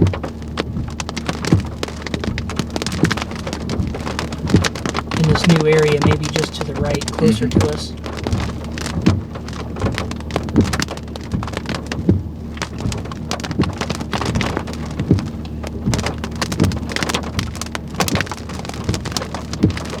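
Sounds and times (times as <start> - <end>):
heavy rain drops on hard surface: 0.0 - 20.0
steady low hum: 0.1 - 19.9.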